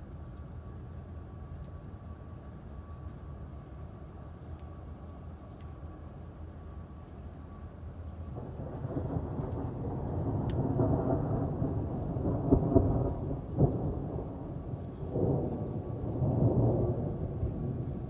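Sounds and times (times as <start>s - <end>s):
steady rain: 0.0s - 18.0s
rolling thunder: 8.4s - 18.0s.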